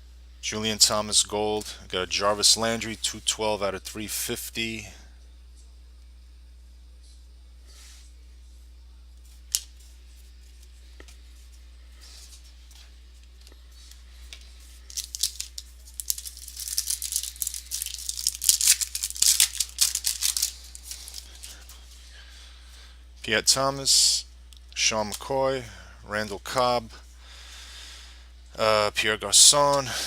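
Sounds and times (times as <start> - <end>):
foil wrapper crackling and rustling: 14.8 - 21.6.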